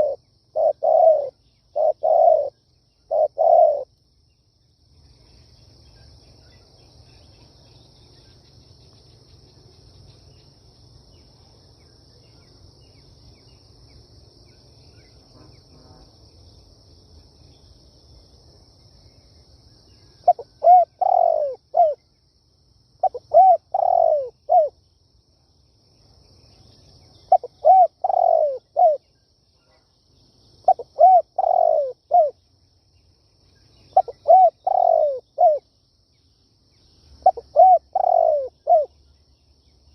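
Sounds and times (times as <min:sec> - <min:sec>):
dove cooing: 0:00.0 - 0:03.9, 0:20.2 - 0:22.0, 0:23.0 - 0:24.8, 0:27.3 - 0:29.0, 0:30.7 - 0:32.4, 0:34.0 - 0:35.6, 0:37.2 - 0:38.9.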